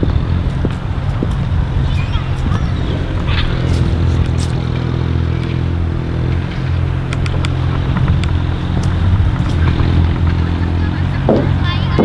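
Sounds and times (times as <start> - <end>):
vehicle engine humming: 0.0 - 12.0
light ticks: 3.2 - 11.0.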